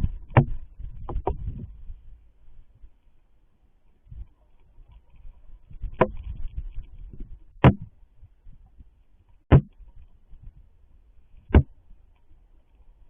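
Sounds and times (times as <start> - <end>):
sharp knocks: 7.6 - 7.9, 9.5 - 9.8.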